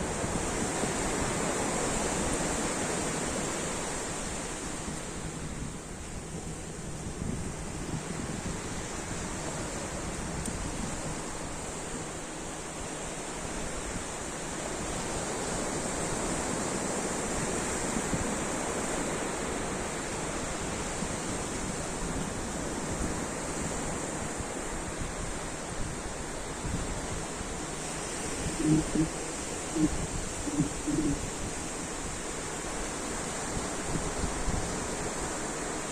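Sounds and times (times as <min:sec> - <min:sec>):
ocean surf washing in: 0:00.0 - 0:35.9.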